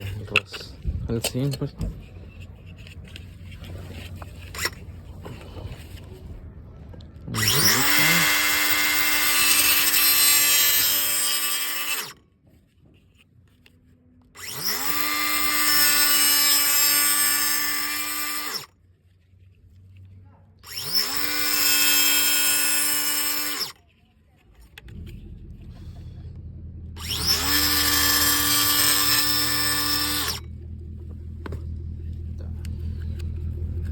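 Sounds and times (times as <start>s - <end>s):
electric power tool whining: 4.4s - 4.8s, 7.4s - 12.2s, 14.4s - 18.7s, 20.6s - 23.8s, 27.0s - 30.6s.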